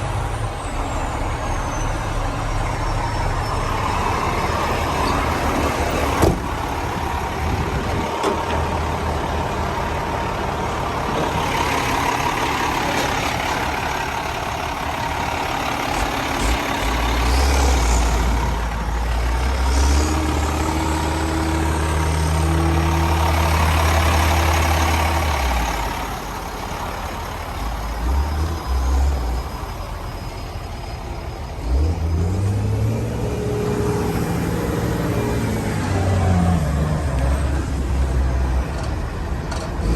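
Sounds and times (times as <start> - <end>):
diesel truck engine revving: 0.0 - 39.9.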